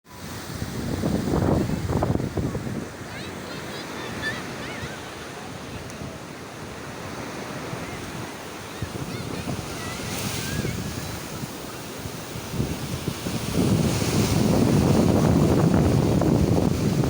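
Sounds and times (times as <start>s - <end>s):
sea waves surf: 0.1s - 17.0s
wind buffeting microphone: 0.2s - 3.6s, 6.9s - 17.0s.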